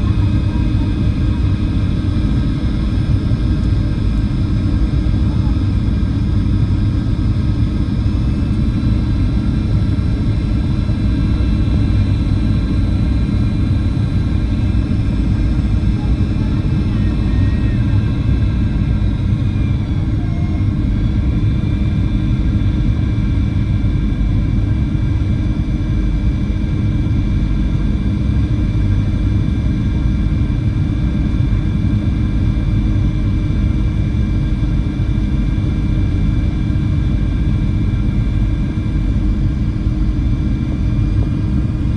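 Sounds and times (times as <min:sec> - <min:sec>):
jet engine cabin rumble: 0:00.0 - 0:41.9.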